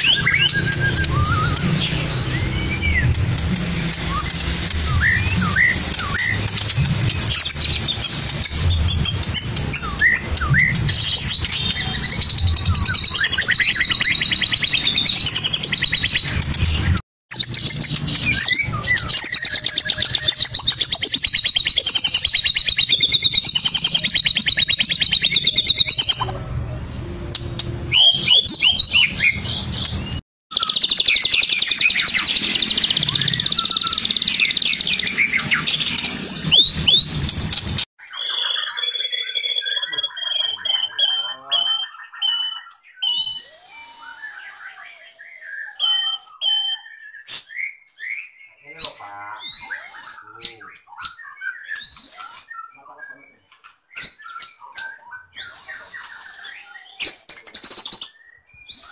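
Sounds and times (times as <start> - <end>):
bird singing whistles and trills: 0.0 - 26.3, 27.6 - 58.9.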